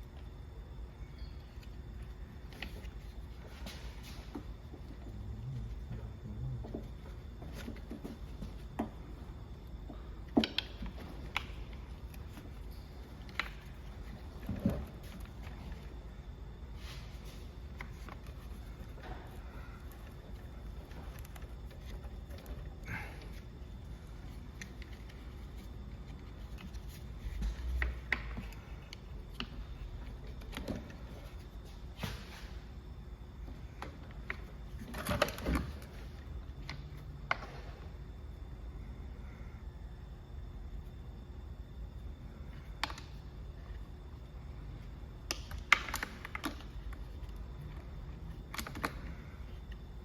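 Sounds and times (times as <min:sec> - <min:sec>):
low steady hum: 0:00.0 - 0:50.0.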